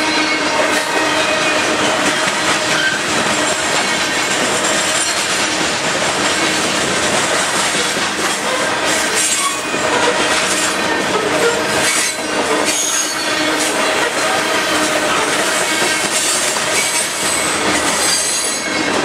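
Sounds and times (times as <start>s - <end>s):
freight train rumbling past: 0.0s - 19.0s
wheels clacking over rail joints: 0.0s - 19.0s
high wheel squeal: 2.6s - 3.8s, 8.5s - 13.8s, 15.6s - 19.0s.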